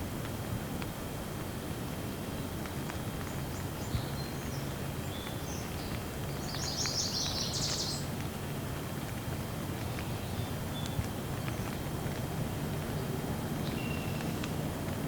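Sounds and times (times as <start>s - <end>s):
steady rain falling: 0.0s - 15.0s
small bird chirping: 5.1s - 8.1s.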